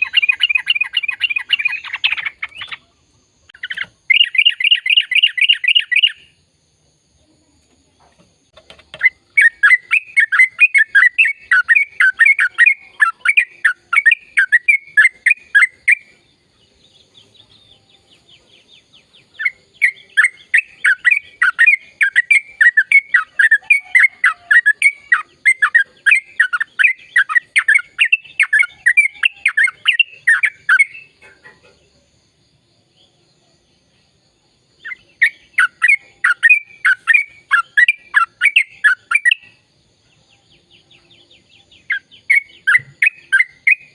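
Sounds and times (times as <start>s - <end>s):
bird singing chattering notes: 0.0s - 6.4s, 8.4s - 31.8s, 34.8s - 39.7s, 40.6s - 43.9s.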